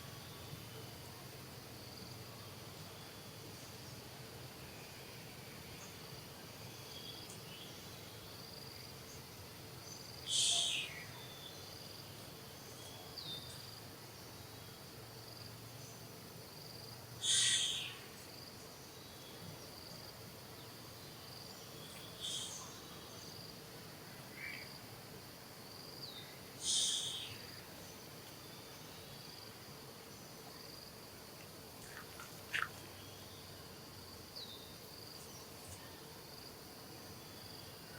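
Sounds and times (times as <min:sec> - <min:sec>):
high insect drone: 0:00.0 - 0:37.9
faint chirps: 0:21.5 - 0:23.4, 0:26.0 - 0:29.3.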